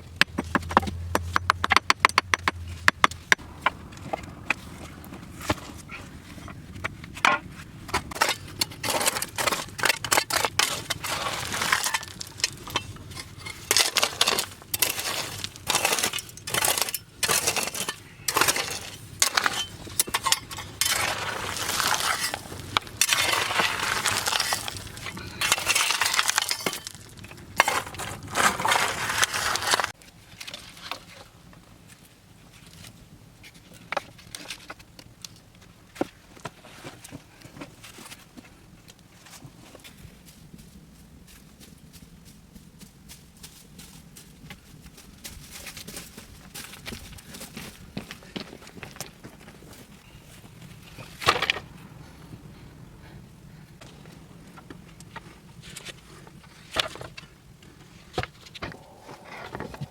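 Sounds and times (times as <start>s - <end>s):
scraping or crunching: 3.9s - 31.3s, 58.2s - 59.9s.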